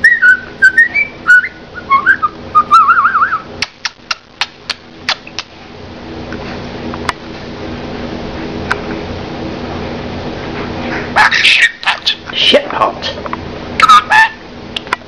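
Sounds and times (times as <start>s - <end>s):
sharp clicks: 3.6s - 5.5s
budgerigar chirping and warbling: 13.8s - 14.4s.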